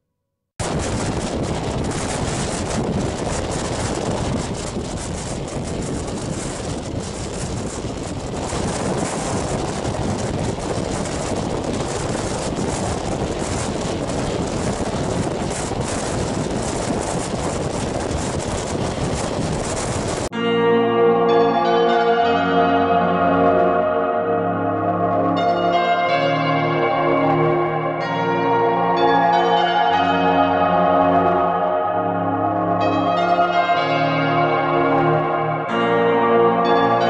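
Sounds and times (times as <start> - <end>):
train running on rails: 0.6 - 20.3
wind rushing over microphone: 0.6 - 20.4.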